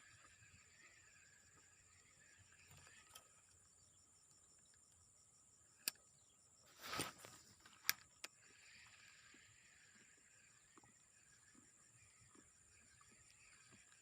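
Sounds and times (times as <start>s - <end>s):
insects chirring: 0.0s - 14.0s
brief rustle: 6.7s - 8.0s.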